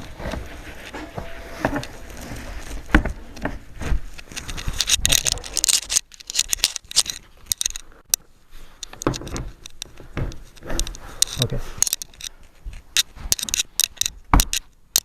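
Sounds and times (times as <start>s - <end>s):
furniture pieces scraping and rustling: 0.0s - 6.0s.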